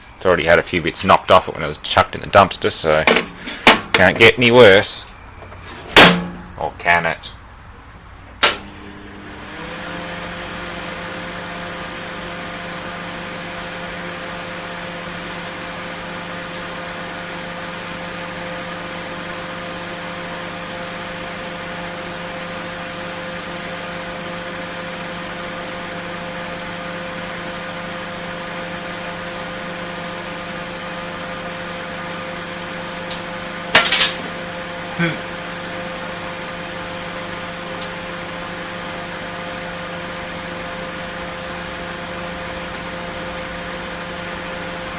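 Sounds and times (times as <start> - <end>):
loud sharp crack: 6.0 - 6.4
microwave oven humming: 7.4 - 44.9.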